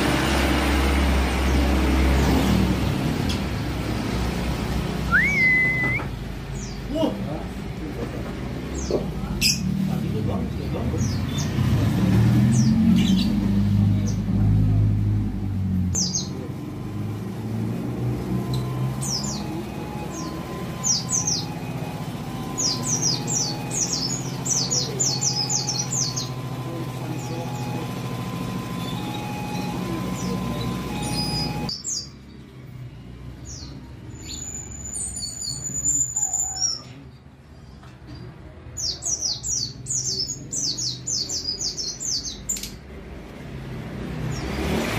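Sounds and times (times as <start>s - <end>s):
bird chirping rapidly: 5.0s - 7.1s, 18.4s - 32.3s.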